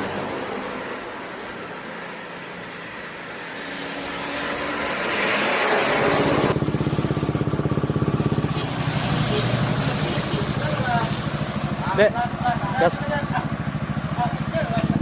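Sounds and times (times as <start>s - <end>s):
motorcycle engine idling: 6.5s - 15.0s.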